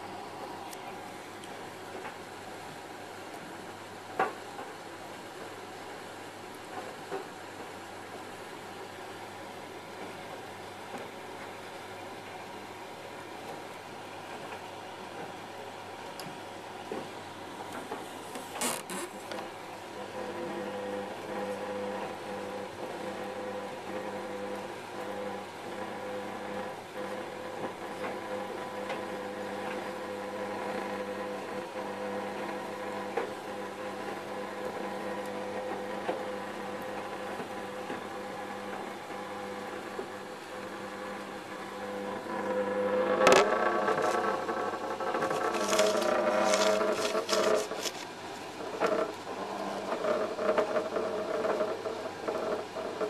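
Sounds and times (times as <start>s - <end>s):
tumble dryer running: 30.9s - 52.8s.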